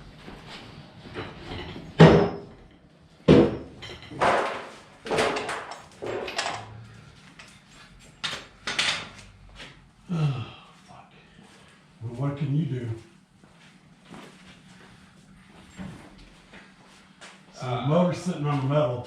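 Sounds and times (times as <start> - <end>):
knocks and bangs in workshop: 1.1 - 6.8.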